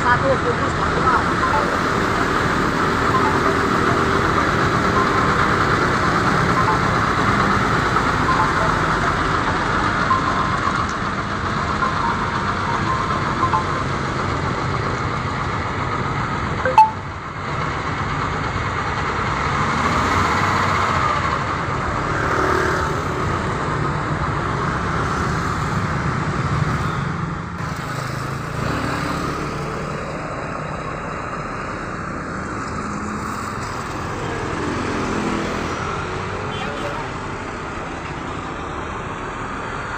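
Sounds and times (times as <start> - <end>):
truck engine and road noise: 0.0 - 39.9.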